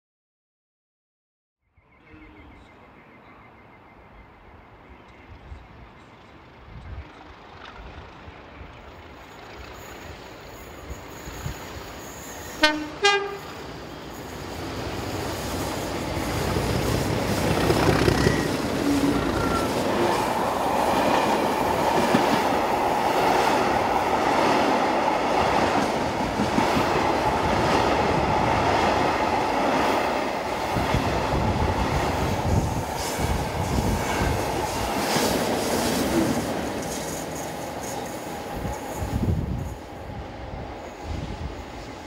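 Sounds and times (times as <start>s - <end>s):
train wheels rumbling: 4.8s - 42.0s
wheels clacking over rail joints: 13.7s - 39.1s.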